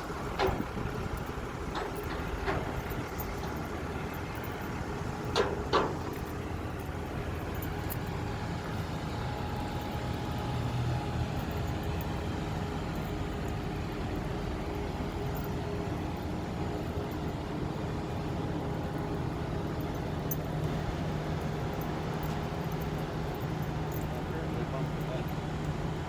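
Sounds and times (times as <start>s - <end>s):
truck engine and road rumble: 0.0s - 26.0s.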